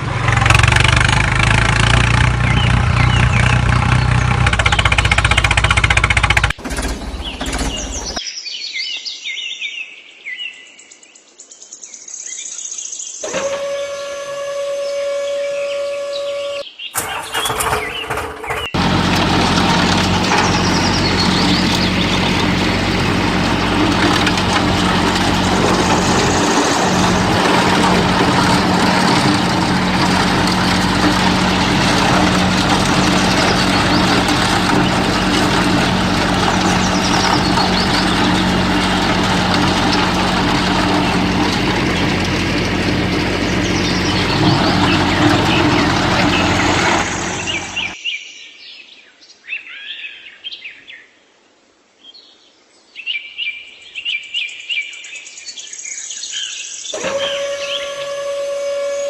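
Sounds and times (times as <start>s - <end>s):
engine running: 0.0s - 8.2s, 13.2s - 48.0s, 57.0s - 59.0s.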